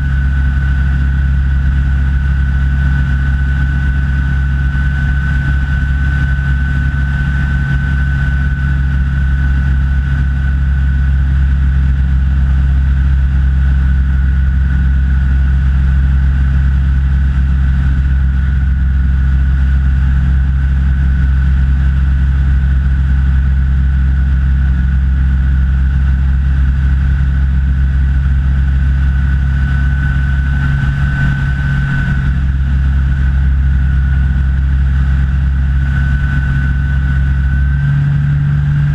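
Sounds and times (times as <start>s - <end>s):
light aircraft engine droning: 0.0s - 38.9s
high-pitched whine: 25.6s - 38.9s.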